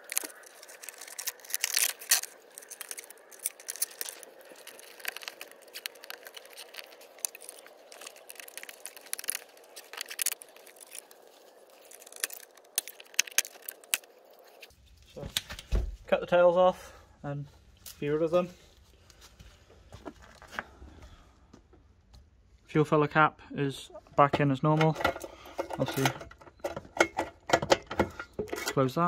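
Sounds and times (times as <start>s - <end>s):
cable ties ratcheting zips: 0.0s - 11.1s, 11.8s - 14.0s.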